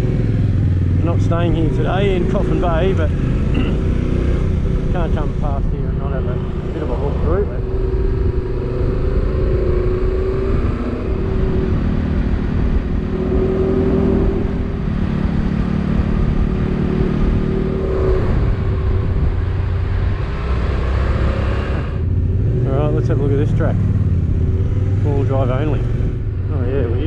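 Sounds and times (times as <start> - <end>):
motorcycle engine: 0.0 - 27.0
wind on microphone: 1.3 - 22.9.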